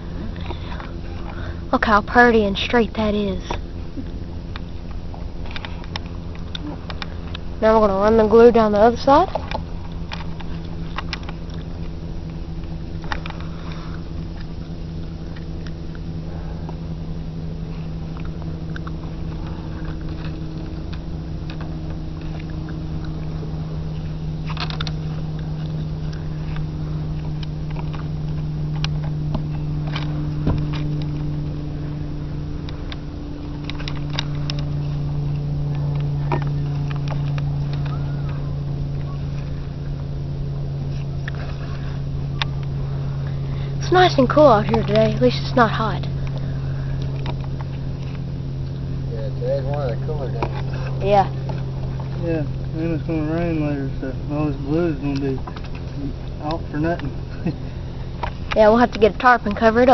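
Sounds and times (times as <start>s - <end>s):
engine humming: 0.0s - 59.9s.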